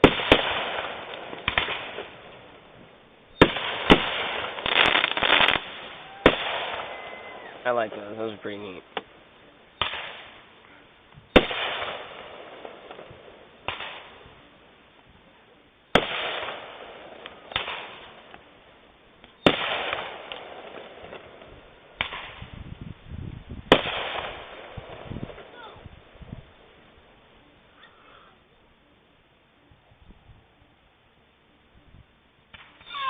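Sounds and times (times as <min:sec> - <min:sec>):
fireworks booming: 0:00.0 - 0:09.2, 0:09.8 - 0:10.6, 0:11.2 - 0:14.4, 0:15.9 - 0:18.4, 0:19.3 - 0:26.7
fireworks crackling: 0:00.0 - 0:27.8, 0:31.6 - 0:33.0.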